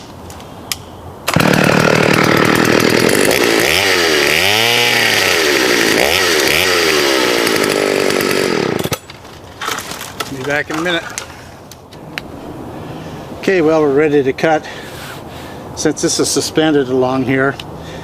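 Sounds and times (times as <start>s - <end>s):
chainsaw cutting branch: 1.3s - 9.2s.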